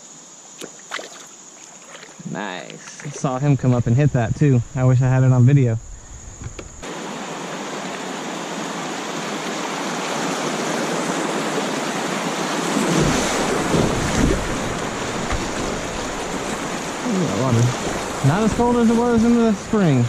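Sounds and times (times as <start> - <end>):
river water rushing: 6.8 - 20.0.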